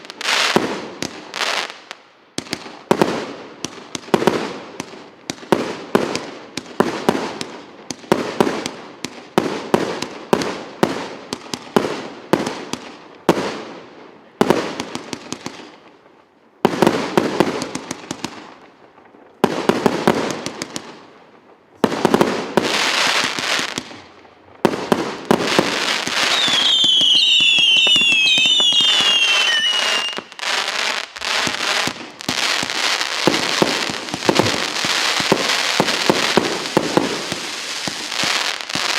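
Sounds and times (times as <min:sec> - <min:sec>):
firework crackling: 0:21.9 - 0:38.9
firework shots and bangs: 0:24.6 - 0:38.9
firework whistles falling in pitch: 0:26.1 - 0:30.6.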